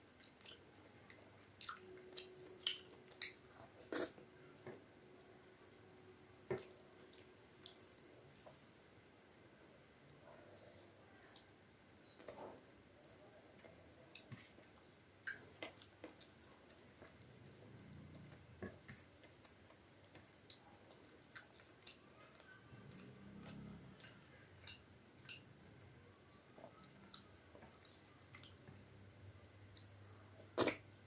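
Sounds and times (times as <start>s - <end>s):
wet chewing sounds: 0.0s - 4.7s, 6.6s - 8.9s, 13.0s - 25.5s, 26.6s - 29.9s.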